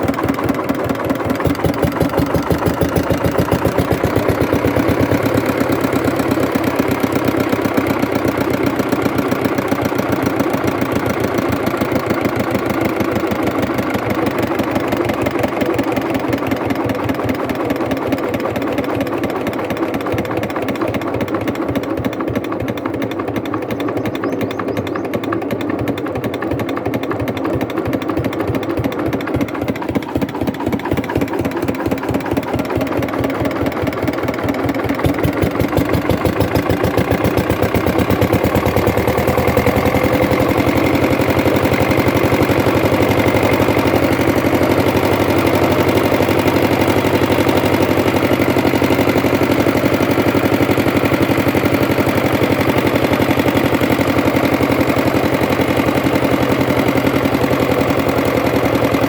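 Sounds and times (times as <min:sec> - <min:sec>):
diesel engine revving up: 0:01.4 - 0:10.8, 0:34.9 - 0:59.0.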